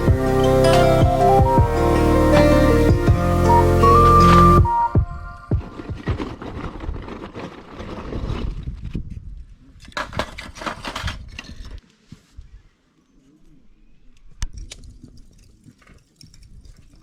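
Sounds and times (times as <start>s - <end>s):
objects being handled: 5.5s - 9.0s, 9.8s - 12.4s.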